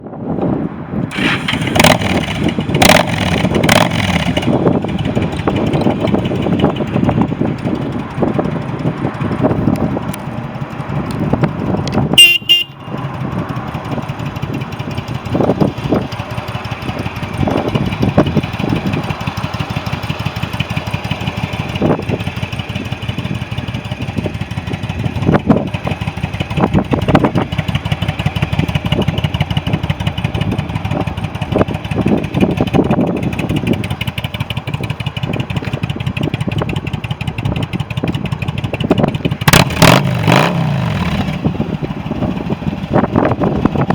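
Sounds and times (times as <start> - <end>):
motorcycle engine idling: 1.1 - 43.9
short horn beep: 12.2 - 13.0.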